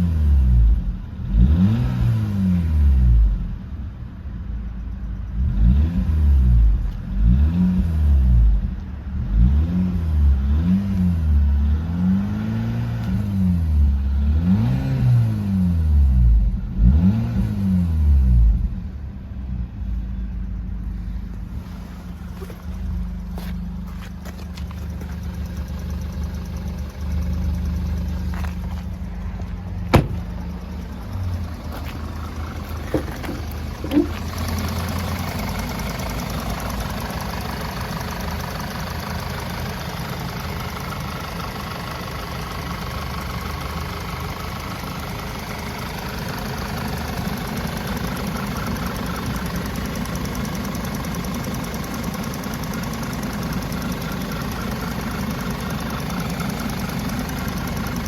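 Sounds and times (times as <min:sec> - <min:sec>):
car engine idling: 0:18.1 - 0:58.0.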